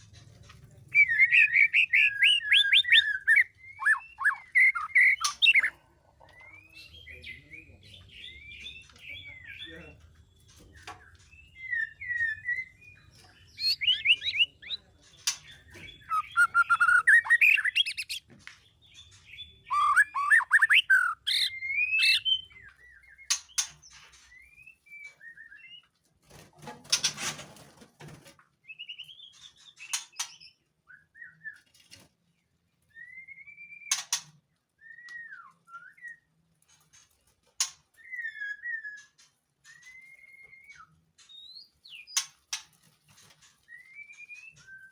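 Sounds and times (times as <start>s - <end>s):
songbird fluty whistled song: 0.9s - 23.7s, 24.3s - 26.0s, 28.6s - 31.9s, 32.8s - 36.4s, 37.9s - 42.3s, 43.6s - 44.9s
bird sharp calls: 1.0s - 5.8s, 13.5s - 18.2s, 19.7s - 22.5s.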